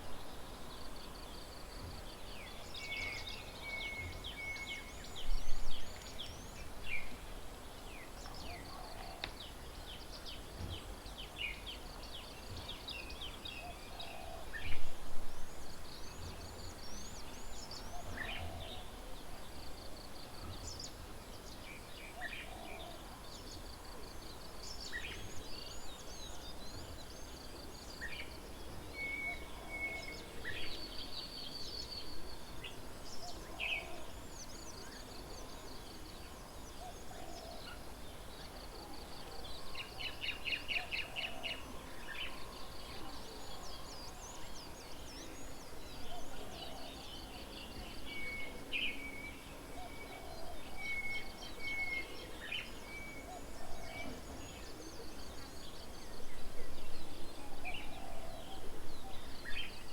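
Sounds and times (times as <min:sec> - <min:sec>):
birds chirping and twittering: 0:24.7 - 0:59.9.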